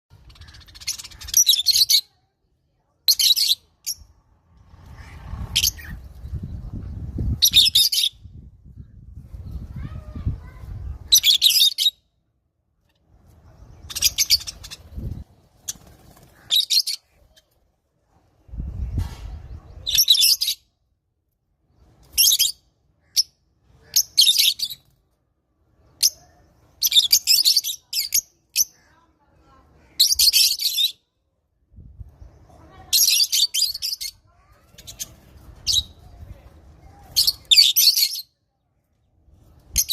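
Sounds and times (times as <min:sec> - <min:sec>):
lovebirds chirping: 0:00.1 - 0:02.3, 0:02.9 - 0:17.6, 0:25.8 - 0:29.2, 0:31.8 - 0:39.9
low rumble: 0:04.0 - 0:07.4.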